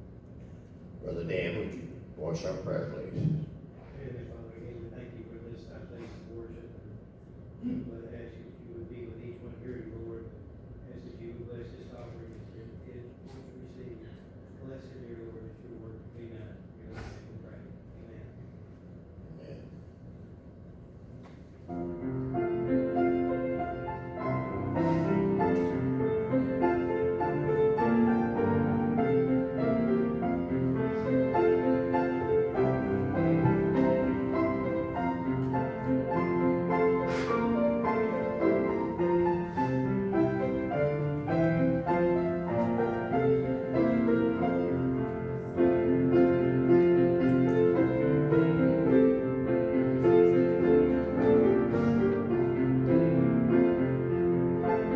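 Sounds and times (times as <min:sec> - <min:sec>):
piano playing chords: 0:21.7 - 0:54.9.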